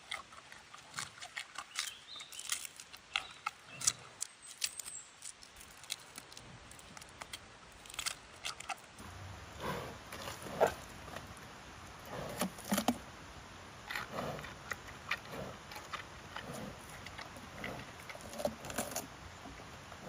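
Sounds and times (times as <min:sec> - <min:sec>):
panda chewing bamboo: 0:00.0 - 0:04.7, 0:13.9 - 0:19.1.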